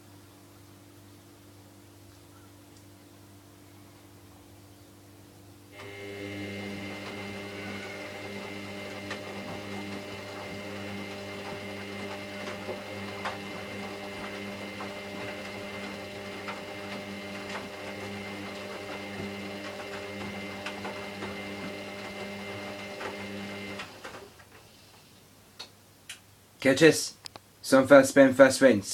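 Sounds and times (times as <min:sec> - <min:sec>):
washing machine motor whining: 0:05.7 - 0:24.7.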